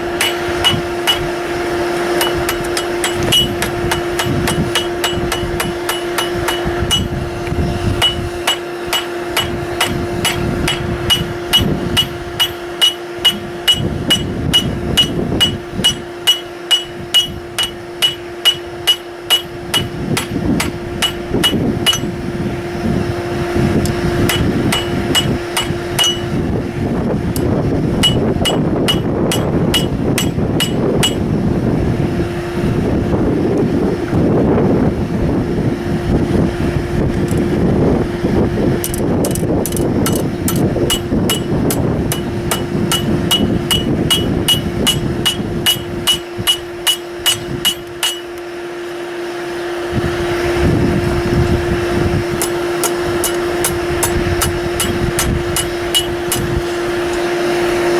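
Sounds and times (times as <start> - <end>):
steady hum: 0.0 - 57.9
hammer striking steel on anvil: 0.1 - 1.4, 2.2 - 7.2, 8.0 - 22.2, 23.8 - 26.4, 27.4 - 31.3, 38.8 - 48.5, 52.4 - 57.2.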